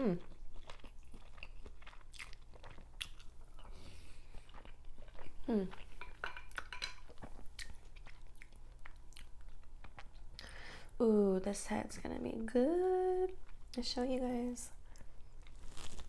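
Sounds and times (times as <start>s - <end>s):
chewing and crunching shrimp: 0.0s - 10.6s, 14.9s - 16.0s.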